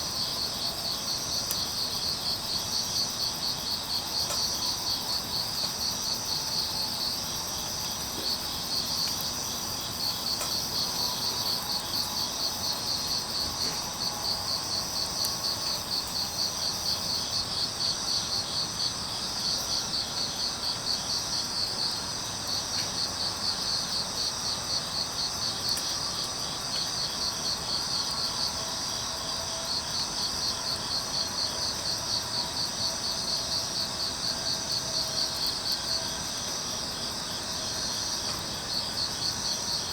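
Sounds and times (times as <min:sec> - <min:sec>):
crickets chirping: 0:00.0 - 0:39.9
faint wood fire pops: 0:07.8 - 0:09.4.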